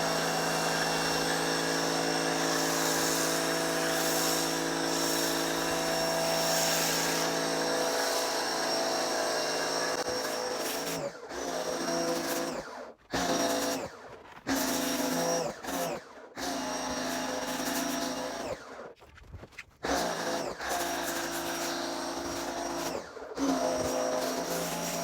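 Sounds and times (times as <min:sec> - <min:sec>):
pressure washer running: 0:00.0 - 0:11.0, 0:19.9 - 0:25.0.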